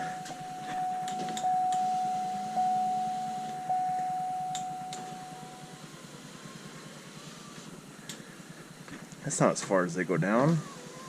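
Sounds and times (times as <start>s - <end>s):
single-pitched chime tone: 0.0s - 5.9s.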